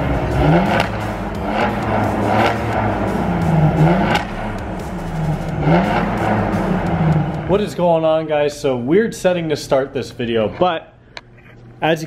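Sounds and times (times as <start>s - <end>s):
car engine accelerating hard: 0.0s - 8.7s
sharp exhaust cracks: 0.0s - 10.5s.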